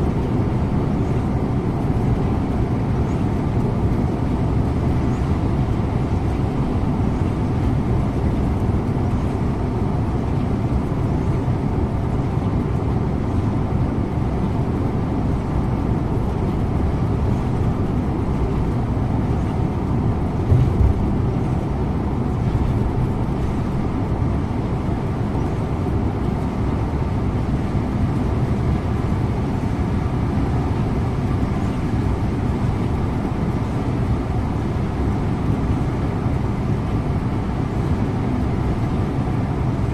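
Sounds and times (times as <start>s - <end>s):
bus engine and tyres droning: 0.0s - 39.9s.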